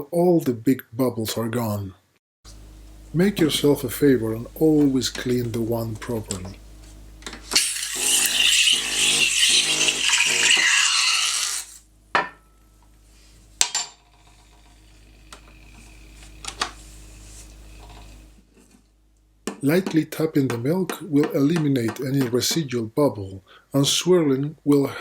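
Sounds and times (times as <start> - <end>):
espresso machine steam wand hissing: 7.5 - 11.8, 14.2 - 18.4.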